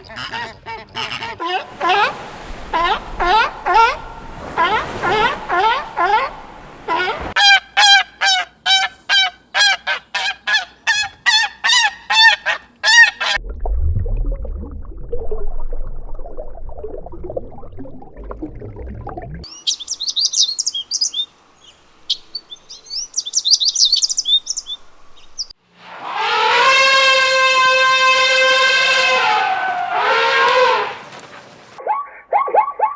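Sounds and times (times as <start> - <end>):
long drawn-out animal call: 0.0 - 8.0, 25.9 - 31.1
short loud animal calls: 1.4 - 7.4, 25.9 - 31.1
low rumbling noise: 13.4 - 19.4.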